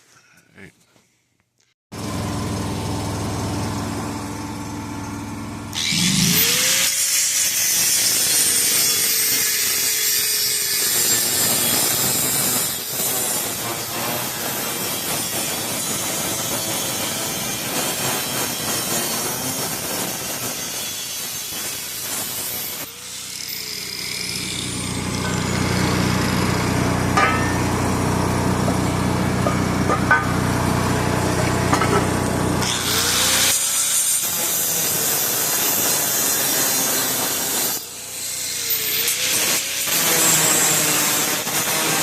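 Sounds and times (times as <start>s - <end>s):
motor hum: 2.0s - 6.8s
power tool cutting steel pipe: 5.7s - 42.0s.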